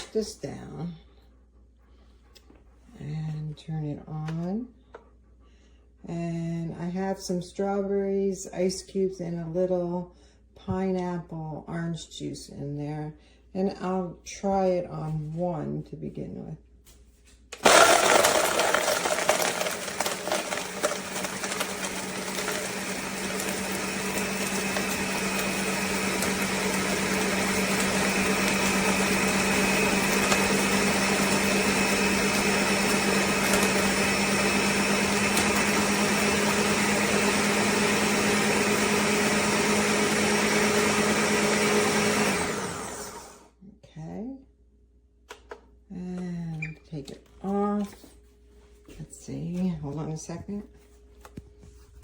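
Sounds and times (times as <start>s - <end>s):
blender crushing ice: 17.6s - 43.5s.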